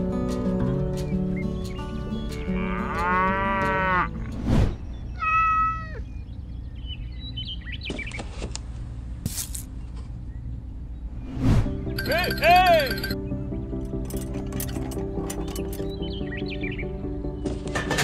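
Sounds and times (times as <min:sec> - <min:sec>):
animal calls: 0:05.1 - 0:06.2.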